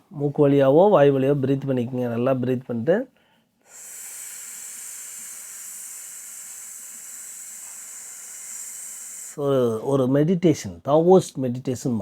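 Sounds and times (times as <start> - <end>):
man hissing through teeth: 3.6 - 9.4.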